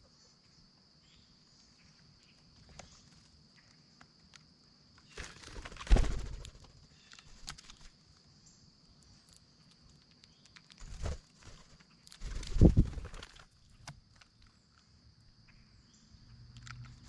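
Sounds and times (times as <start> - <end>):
bird wings flapping: 5.1 - 7.9, 10.7 - 13.9.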